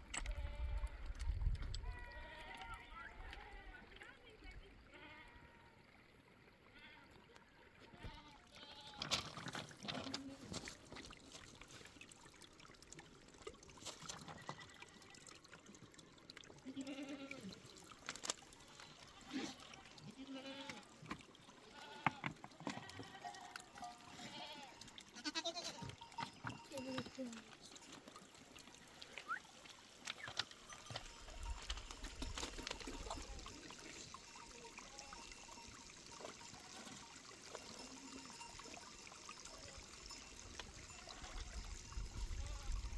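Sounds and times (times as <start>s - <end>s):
goats and sheep bleating: 1.8s - 3.8s, 4.9s - 5.6s, 7.9s - 9.2s, 16.6s - 17.6s, 18.7s - 21.0s, 21.6s - 27.6s, 40.9s - 41.6s, 42.4s - 42.9s.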